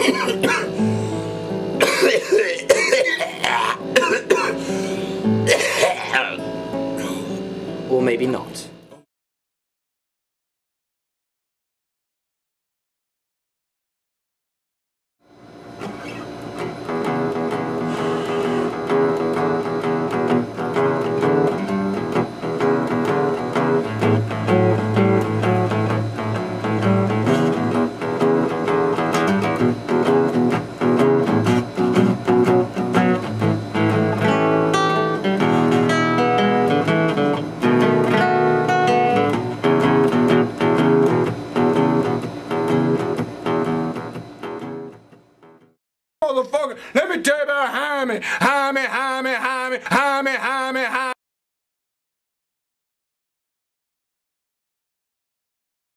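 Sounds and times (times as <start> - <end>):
acoustic blues guitar: 0.0 - 7.9, 15.8 - 45.6, 46.6 - 51.2.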